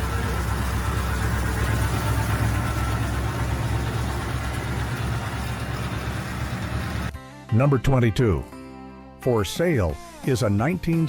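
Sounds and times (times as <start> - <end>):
car engine humming: 0.0 - 7.1.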